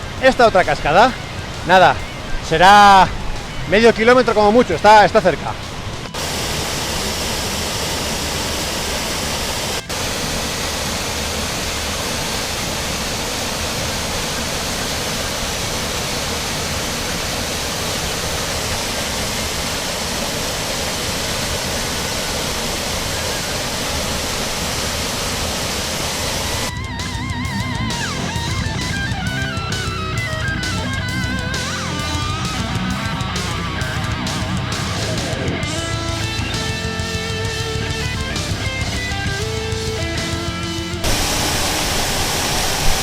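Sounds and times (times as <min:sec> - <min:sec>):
electric guitar music: 0:00.0 - 0:24.9, 0:26.0 - 0:43.0
waterfall rushing: 0:00.0 - 0:43.0.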